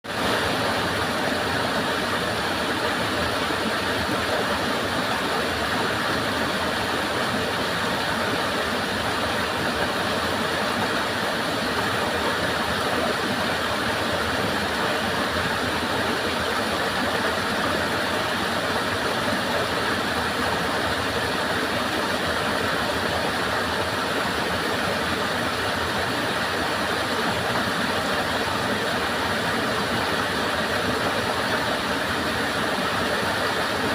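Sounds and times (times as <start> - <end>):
stream water flowing: 0.1 - 33.9.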